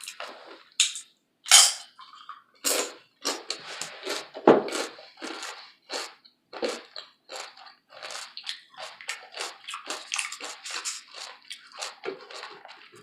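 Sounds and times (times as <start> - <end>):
wet chewing and biting: 3.3 - 13.0.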